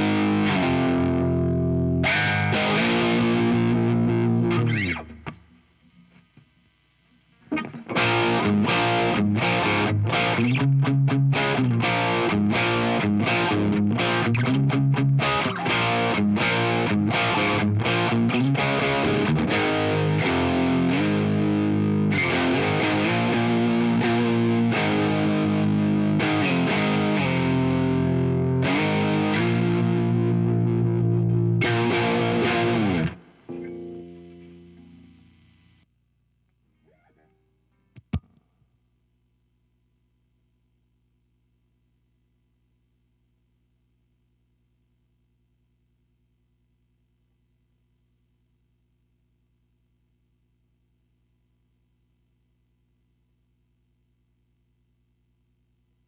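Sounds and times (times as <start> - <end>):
distorted electric guitar riff: 0.0 - 5.6, 7.4 - 35.8.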